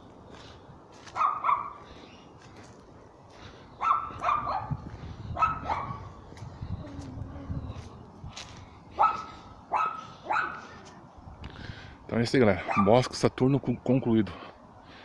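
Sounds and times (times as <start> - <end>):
dog barking: 1.1 - 1.8, 3.8 - 4.8, 5.4 - 6.1, 9.0 - 10.8, 12.6 - 13.0.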